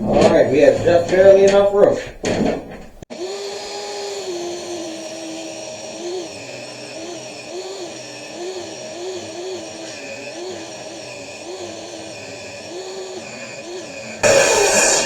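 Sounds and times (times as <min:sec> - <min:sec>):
electric saw ripping through wood: 0:03.1 - 0:15.0.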